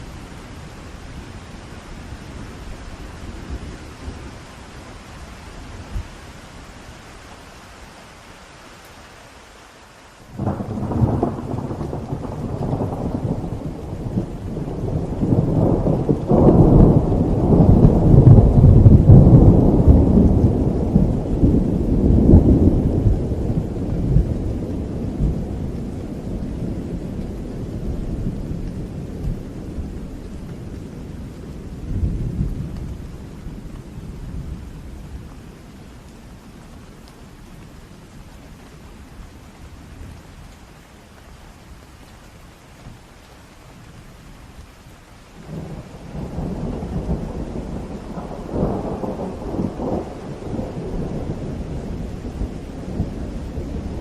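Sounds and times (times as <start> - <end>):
steady rain: 0.0 - 54.0
thunder rumbling: 10.3 - 35.6, 45.4 - 54.0.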